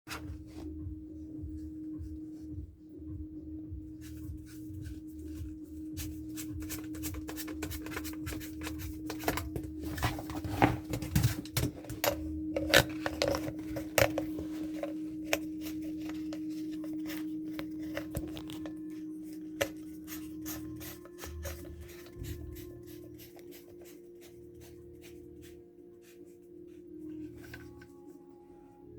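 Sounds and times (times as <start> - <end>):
objects being handled: 4.0 - 25.2, 27.0 - 28.2.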